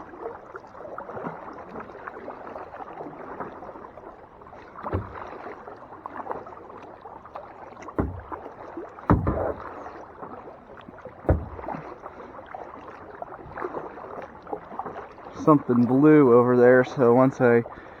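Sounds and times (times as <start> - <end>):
paddle splashing water: 0.0 - 18.0
sharp knocks: 4.9 - 5.3, 8.0 - 8.5, 9.1 - 9.7, 11.3 - 11.8.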